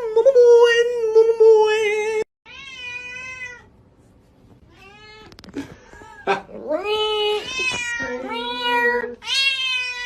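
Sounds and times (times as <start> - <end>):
cat meowing: 2.5 - 3.7, 7.2 - 10.0.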